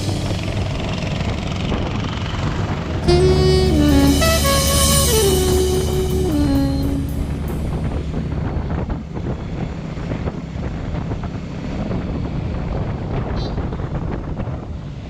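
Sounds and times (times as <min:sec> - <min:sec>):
motorcycle engine running: 0:00.0 - 0:09.4
wind buffeting microphone: 0:07.0 - 0:15.0.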